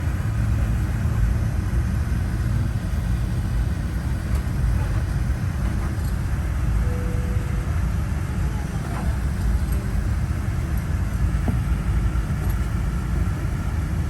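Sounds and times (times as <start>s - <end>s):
airliner cabin rumble: 0.0s - 14.0s.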